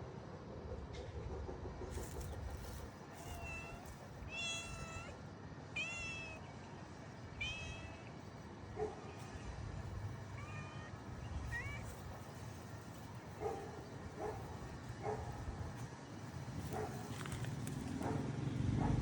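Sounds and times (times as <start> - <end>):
cat meowing: 3.2 - 5.2, 5.8 - 6.5, 7.4 - 8.1, 10.4 - 12.2.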